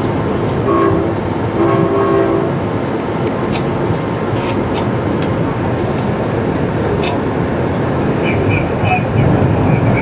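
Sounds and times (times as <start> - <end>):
train wheels rumbling on rail: 0.0 - 10.0
train horn: 0.6 - 2.6.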